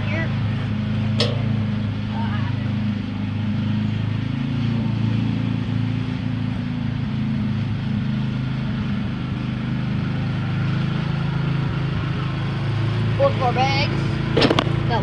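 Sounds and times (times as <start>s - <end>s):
lawn mower engine running: 0.0s - 15.0s.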